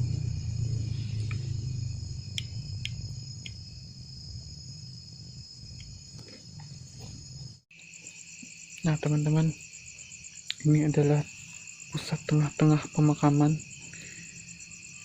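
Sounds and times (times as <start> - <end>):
low rumble: 0.0 - 6.1
crickets chirring: 0.0 - 15.0.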